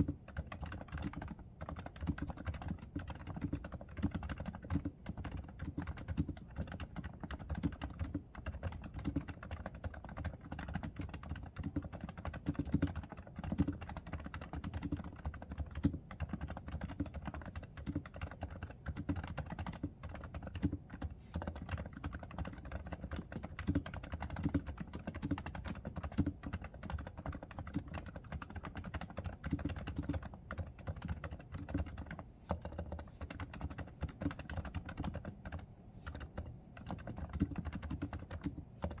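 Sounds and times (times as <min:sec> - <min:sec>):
muted keyboard typing: 0:00.0 - 0:39.0.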